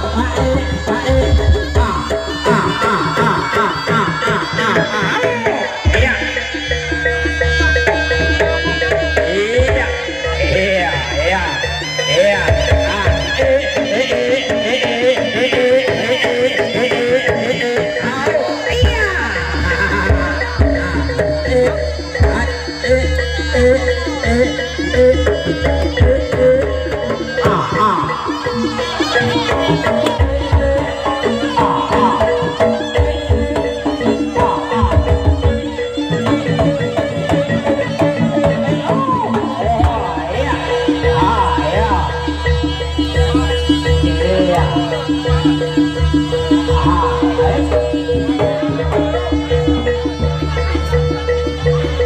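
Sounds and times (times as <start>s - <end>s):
double-reed shawm melody: 0.0s - 52.0s
drum strokes: 0.0s - 52.0s
percussion: 0.0s - 52.0s
hand drumming: 28.6s - 50.8s.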